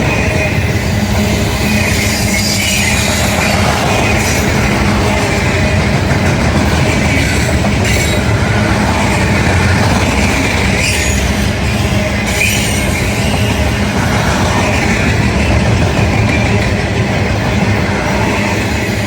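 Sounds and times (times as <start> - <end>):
wheel squeal on rail: 0.0 - 5.8, 6.8 - 8.5, 9.1 - 16.7
freight train wheels rumbling: 0.0 - 19.0.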